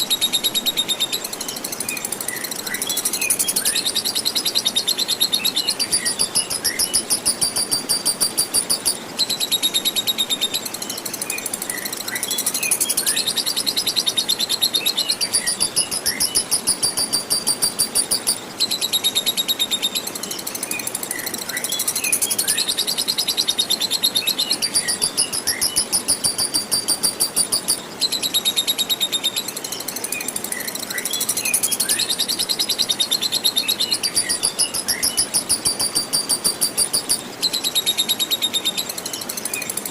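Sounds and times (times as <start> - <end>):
bird rapid chattering trill: 2.4 - 9.0, 11.8 - 18.4, 21.8 - 27.8, 31.0 - 38.5.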